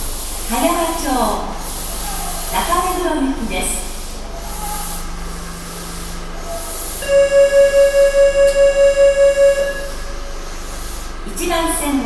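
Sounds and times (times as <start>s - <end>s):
rapid electronic beeping: 5.7s - 11.0s.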